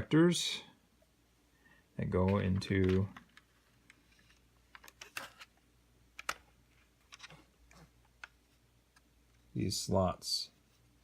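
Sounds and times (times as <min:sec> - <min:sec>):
plastic parts clicking: 0:02.2 - 0:09.1.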